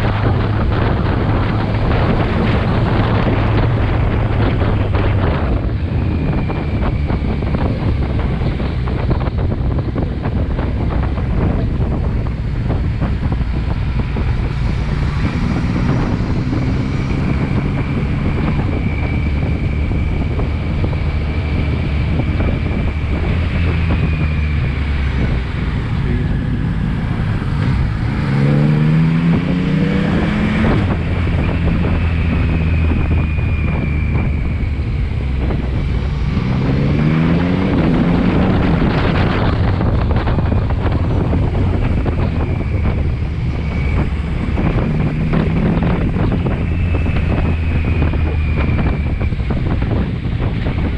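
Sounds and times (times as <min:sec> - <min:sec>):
heavy wind noise: 0:00.0 - 0:50.9
motorcycle engine revving: 0:00.0 - 0:50.9.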